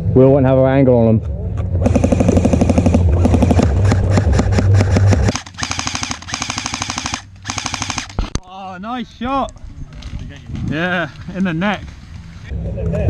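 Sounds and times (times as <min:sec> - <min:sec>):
airsoft guns firing full-auto: 0:01.8 - 0:08.2.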